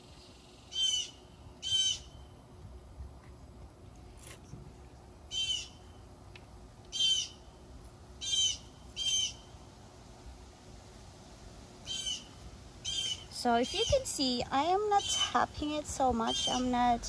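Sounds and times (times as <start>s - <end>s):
bird calling: 0.7s - 2.2s, 5.3s - 5.9s, 6.9s - 7.4s, 8.2s - 9.5s, 11.8s - 14.1s, 16.2s - 17.0s.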